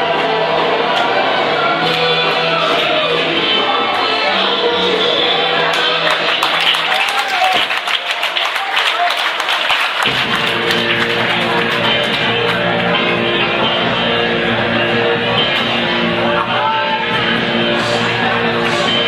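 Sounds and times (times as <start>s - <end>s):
soul record over sound system: 10.0s - 19.0s.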